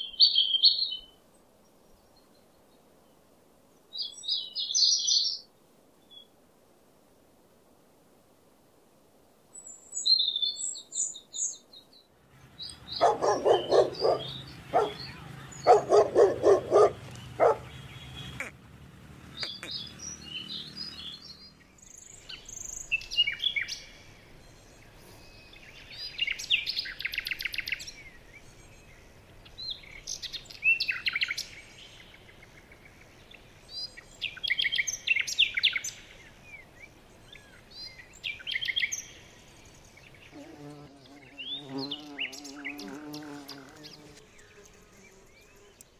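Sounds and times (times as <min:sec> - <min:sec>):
birds chirping and trilling: 0:00.0 - 0:01.1, 0:03.9 - 0:05.4, 0:09.6 - 0:45.9
rapid lower bird calls: 0:12.6 - 0:18.6, 0:19.3 - 0:23.6.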